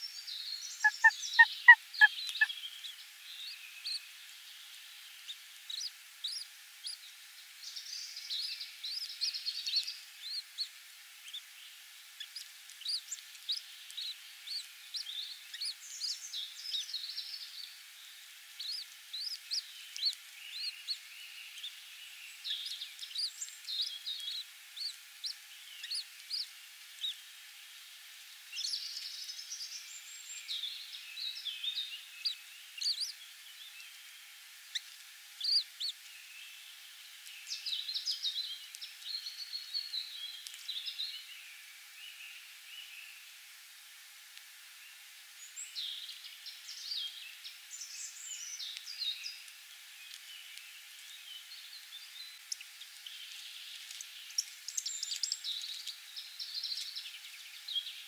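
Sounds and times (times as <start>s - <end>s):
birds chirping: 0.4s - 4.1s.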